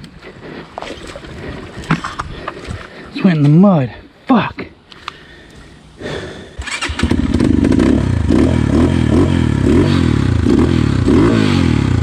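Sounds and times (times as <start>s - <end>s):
dirt bike engine revving: 6.6s - 12.0s
engine clatter: 6.6s - 12.0s.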